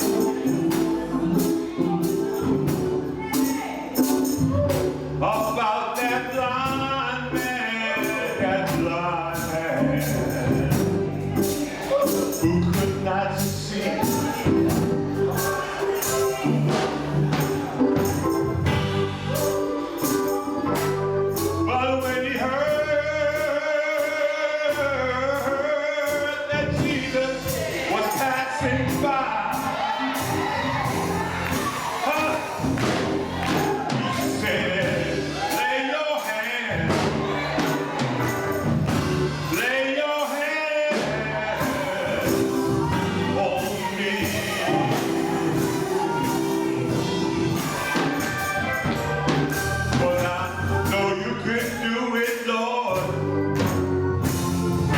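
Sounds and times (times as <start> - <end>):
choir singing: 0.0 - 5.6, 9.3 - 22.6, 23.2 - 53.2
steady drum beat: 0.0 - 5.6, 8.4 - 21.7, 26.5 - 35.7, 36.3 - 39.8, 40.9 - 51.8, 53.0 - 54.9
bass line: 0.0 - 23.7, 24.7 - 25.8, 26.4 - 35.6, 36.7 - 39.7, 40.9 - 52.0, 53.0 - 54.9
instrumental accompaniment: 0.0 - 54.9
lead singer singing: 21.5 - 53.2
band playing sustained chords: 41.0 - 51.8.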